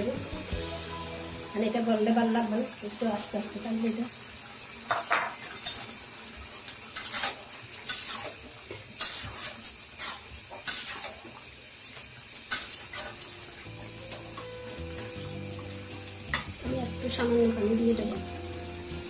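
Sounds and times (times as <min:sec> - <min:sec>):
spatula clinking and scraping pan: 0:04.9 - 0:06.1, 0:06.9 - 0:18.9
metal spatula stirring vegetables: 0:06.8 - 0:19.0.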